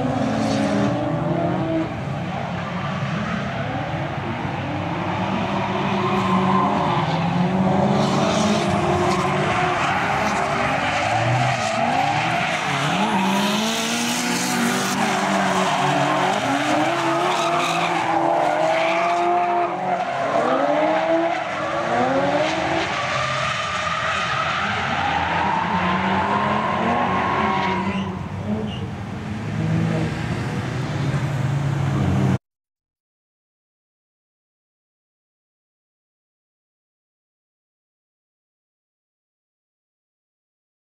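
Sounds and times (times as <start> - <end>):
car engine revving: 7.2 - 19.8.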